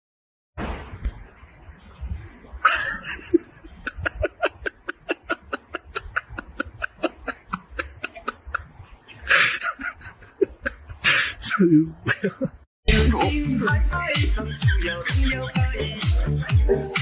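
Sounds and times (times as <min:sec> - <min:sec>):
person laughing: 0:02.6 - 0:12.6.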